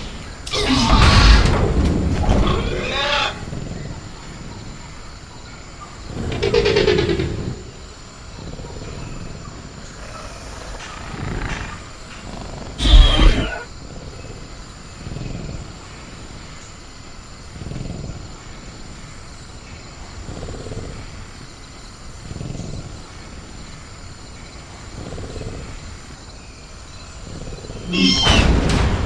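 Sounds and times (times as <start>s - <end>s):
crickets droning: 0.0s - 29.0s
creature growling low: 9.9s - 13.7s.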